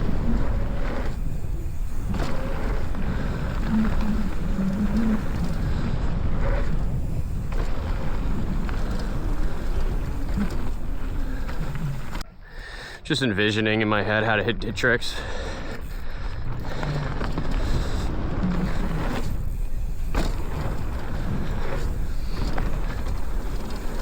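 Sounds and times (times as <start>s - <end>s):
bike clattering on dirt trail: 0.0s - 12.2s, 14.6s - 24.0s
wind buffeting microphone: 0.0s - 12.2s.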